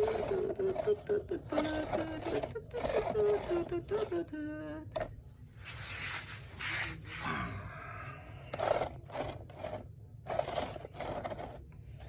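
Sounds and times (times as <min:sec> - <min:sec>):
plastic toy pieces scraping: 0:00.0 - 0:04.3, 0:08.5 - 0:12.0.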